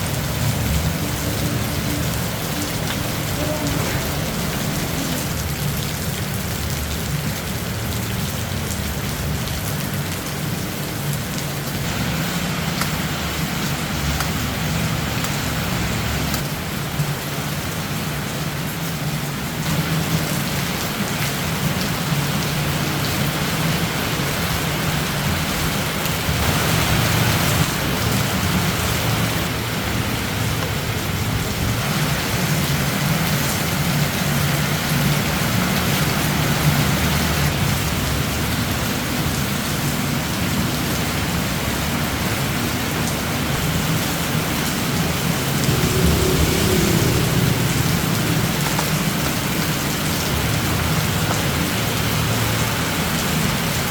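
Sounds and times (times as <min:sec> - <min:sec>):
low hum: 0:45.4 - 0:49.8.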